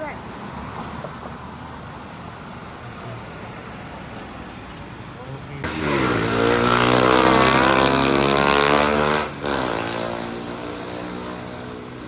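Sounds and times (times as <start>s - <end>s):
vehicle engine revving: 5.6s - 11.8s.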